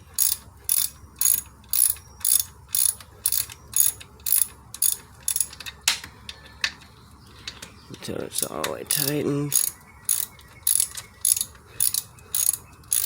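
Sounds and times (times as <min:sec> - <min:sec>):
ratchet wrench clicking: 0:00.1 - 0:05.6, 0:08.4 - 0:13.0.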